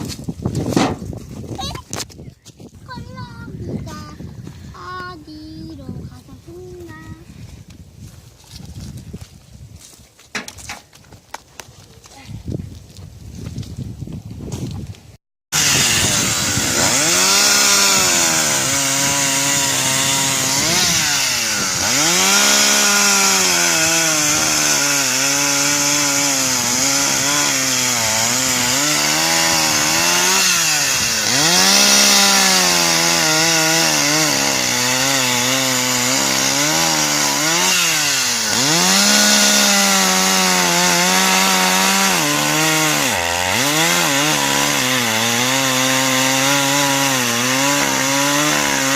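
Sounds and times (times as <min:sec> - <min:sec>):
chainsaw cutting wood: 0:15.5 - 0:48.9.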